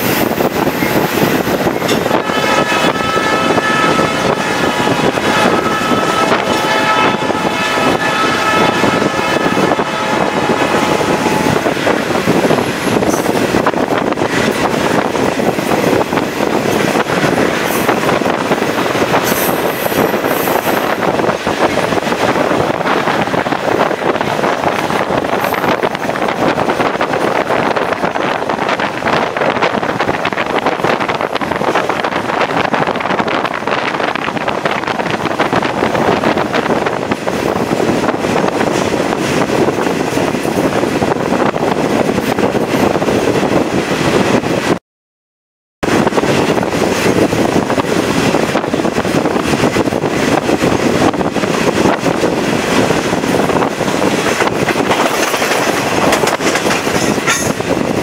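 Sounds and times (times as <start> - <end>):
train cars rumbling and rattling: 0.0 - 44.8, 45.8 - 58.0
wind buffeting microphone: 0.0 - 44.8, 45.8 - 58.0.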